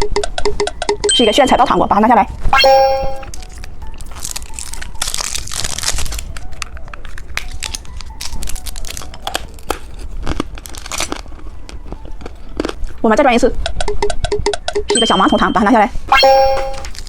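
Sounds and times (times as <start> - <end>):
plastic wrapper crinkling: 3.3 - 13.0.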